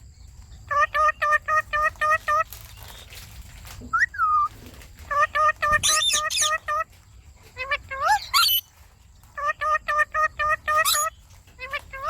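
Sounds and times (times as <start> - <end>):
parakeets chirping: 0.7 - 3.0, 5.1 - 6.9, 7.5 - 8.7, 9.4 - 12.0
shrill parakeet squawks: 5.1 - 6.8, 7.6 - 8.6, 9.4 - 12.0.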